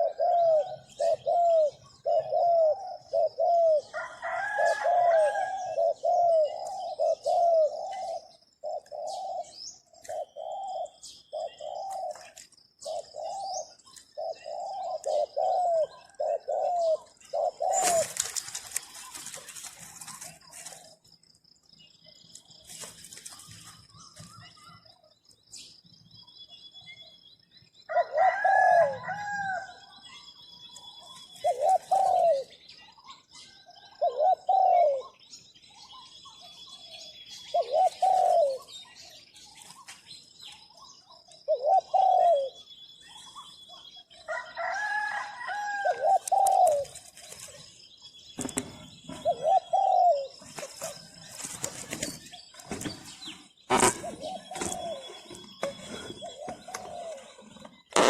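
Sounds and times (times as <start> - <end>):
dove cooing: 0.0 - 21.0, 27.9 - 30.0, 30.9 - 32.6, 33.5 - 35.2, 37.4 - 39.2, 41.4 - 47.7, 48.4 - 58.0.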